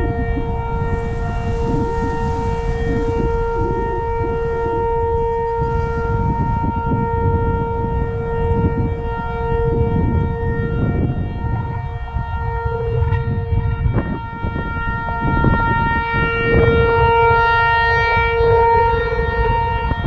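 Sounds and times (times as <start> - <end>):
heavy low rumble: 0.0 - 17.0
fainter second siren: 0.0 - 20.0
warning siren steady tone: 0.0 - 20.0.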